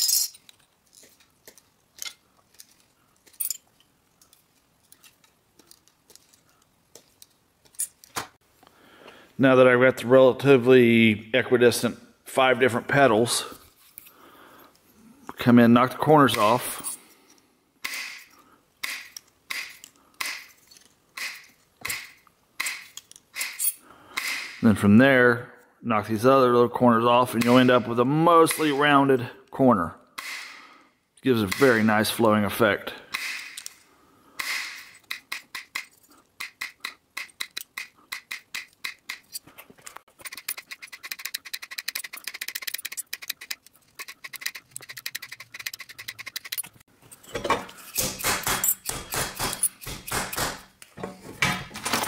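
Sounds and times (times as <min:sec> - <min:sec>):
snips clipping metal: 0:17.8 - 0:24.6, 0:34.4 - 0:39.5, 0:40.2 - 0:46.8, 0:47.4 - 0:50.9.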